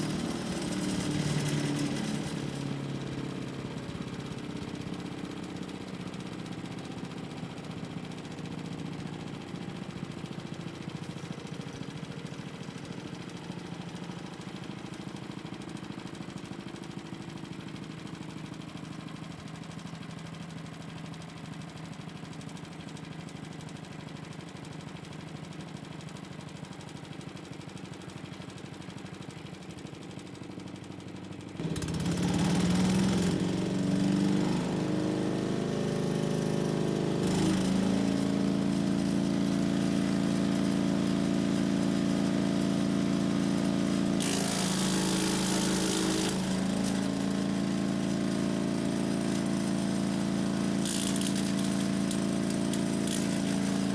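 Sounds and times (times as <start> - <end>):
harsh engine with rushing noise: 0.0 - 8.3, 31.6 - 53.9
engine running: 0.0 - 22.6, 31.5 - 53.9.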